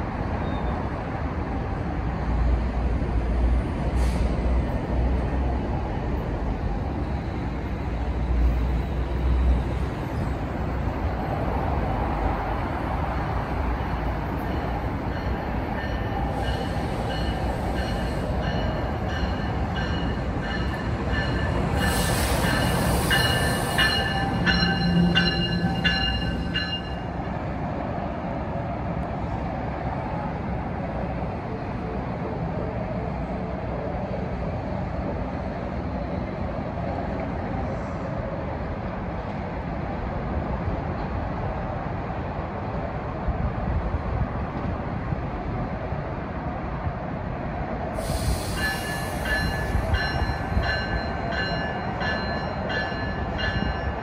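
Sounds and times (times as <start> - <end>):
train rumbling on rails: 0.0 - 54.0
train wheels squealing: 0.4 - 0.9, 8.7 - 10.9, 13.9 - 27.1, 48.0 - 54.0.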